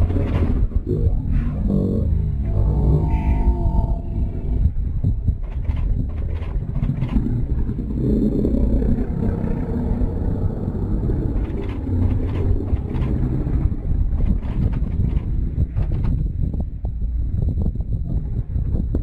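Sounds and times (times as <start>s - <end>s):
lions growling: 6.2s - 13.7s.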